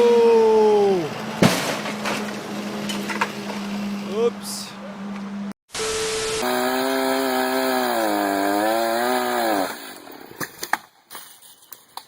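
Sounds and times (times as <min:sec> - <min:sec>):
chainsaw running at high revs: 0:06.4 - 0:10.0.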